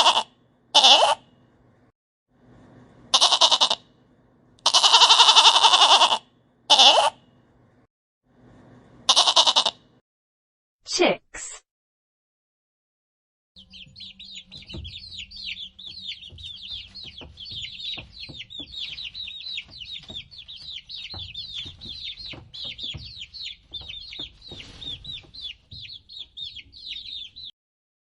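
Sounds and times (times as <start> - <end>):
chicks peeping: 13.6 - 27.5
soft knocks: 14.5 - 26.3.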